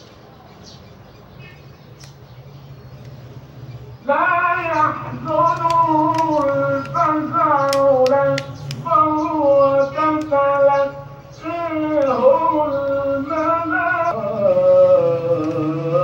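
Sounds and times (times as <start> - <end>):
sharp clicks: 2.0 - 2.2, 5.2 - 13.0
person chanting melodically: 3.3 - 16.0.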